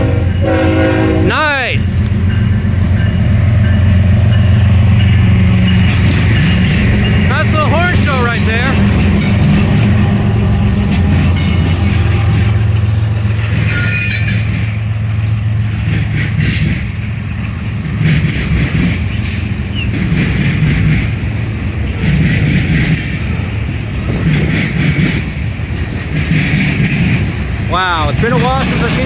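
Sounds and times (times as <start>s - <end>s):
diesel locomotive rumble: 0.0s - 29.0s
train wheels clattering over rails: 2.2s - 29.0s.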